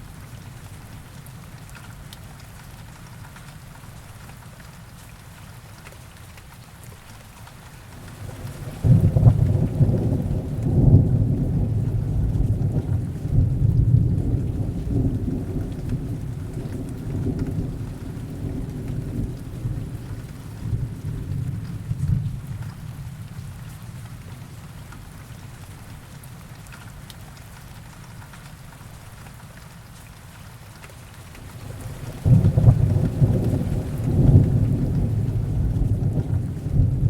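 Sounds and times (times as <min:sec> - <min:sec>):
heavy rain: 0:00.0 - 0:37.0
distant thunder rumbling: 0:08.0 - 0:22.8, 0:31.4 - 0:37.0.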